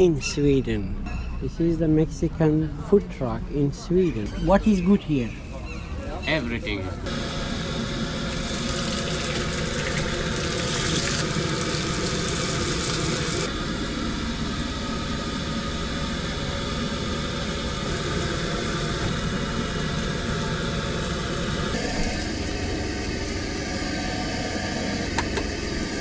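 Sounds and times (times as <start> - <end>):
motor drone: 7.1 - 26.0.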